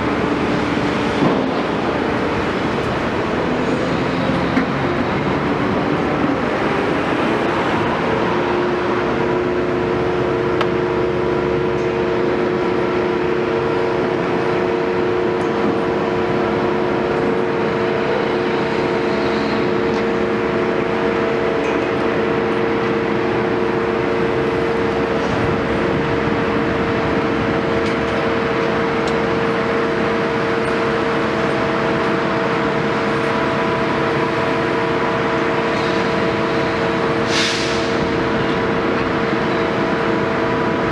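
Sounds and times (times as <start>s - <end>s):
excavator engine running: 0.0s - 40.9s.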